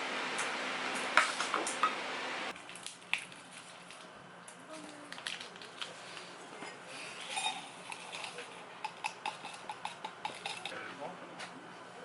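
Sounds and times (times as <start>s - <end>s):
utensils clinking against dishes: 6.6s - 10.8s.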